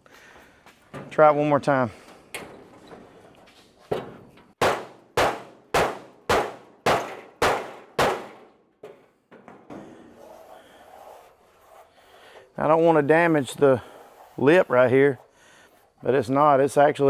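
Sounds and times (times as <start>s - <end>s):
hammer striking sheet metal: 4.0s - 9.0s.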